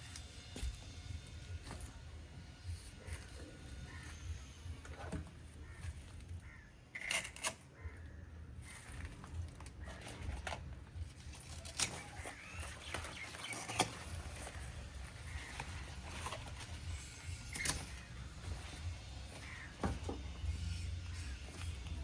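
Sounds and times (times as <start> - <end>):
birds calling: 0.0 - 22.0.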